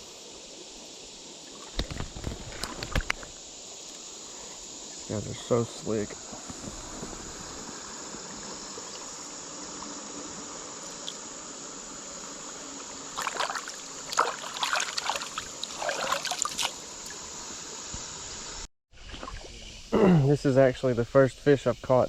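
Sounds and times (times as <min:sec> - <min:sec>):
insects chirring: 0:00.0 - 0:22.0
running river water: 0:00.0 - 0:22.0
splashing and knocking: 0:01.6 - 0:03.3, 0:13.2 - 0:16.8.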